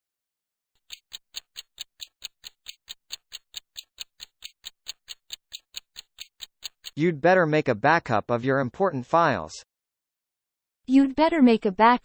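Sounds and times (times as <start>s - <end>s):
countdown timer ticking: 0.8s - 7.0s.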